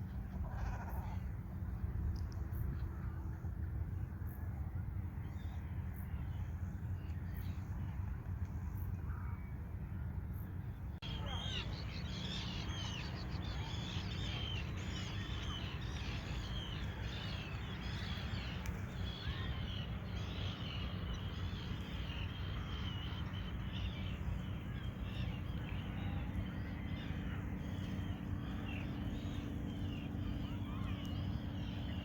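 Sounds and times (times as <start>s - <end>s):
birds chirping: 11.0s - 32.0s.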